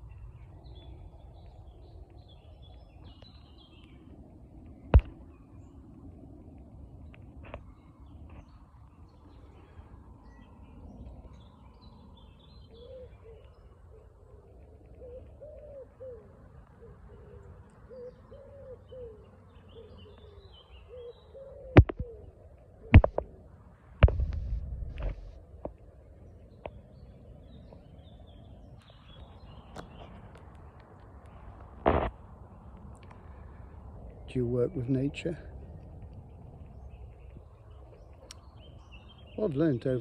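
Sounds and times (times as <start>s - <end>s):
small birds chirping: 0.0s - 23.3s, 24.0s - 40.0s
bird cooing: 12.2s - 23.4s
sharp loud knocks: 23.0s - 23.2s
brief rumbling noise: 31.8s - 32.2s.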